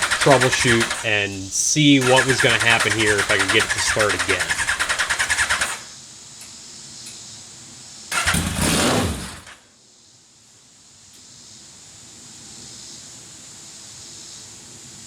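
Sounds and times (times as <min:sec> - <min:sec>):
engine running: 0:00.0 - 0:05.8, 0:08.1 - 0:09.6
engine starting attempt: 0:00.0 - 0:06.0, 0:08.1 - 0:09.6.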